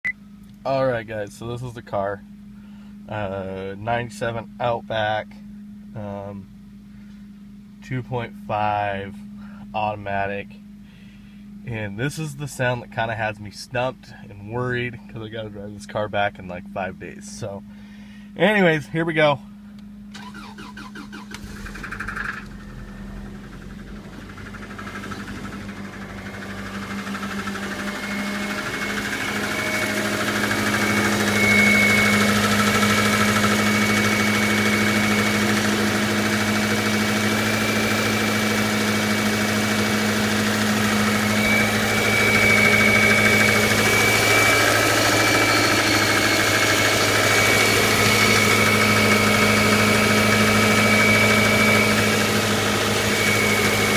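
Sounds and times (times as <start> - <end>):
car engine idling: 14.1 - 53.9.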